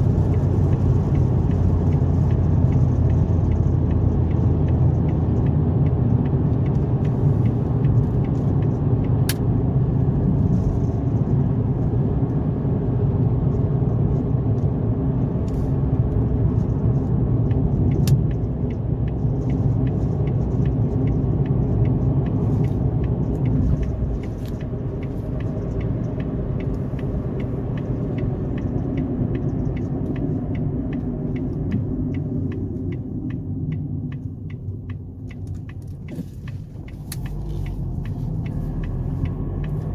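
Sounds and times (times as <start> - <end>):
car engine and tyre rumble: 0.0 - 39.9
faint ticks: 17.4 - 39.9.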